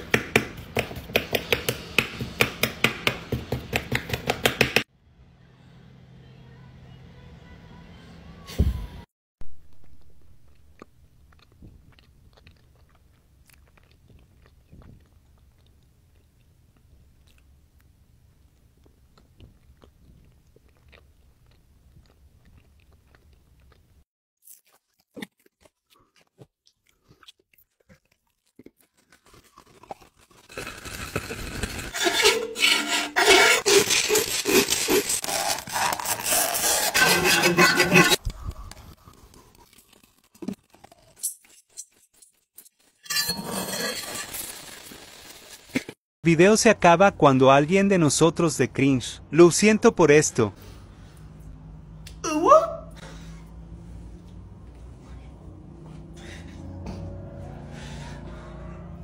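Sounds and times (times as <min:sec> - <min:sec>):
nibbling and chewing: 0:09.8 - 0:31.9, 0:33.7 - 0:36.7, 0:38.2 - 0:42.9
fork scraping a metal lid: 0:31.8 - 0:38.2, 0:43.0 - 0:44.4.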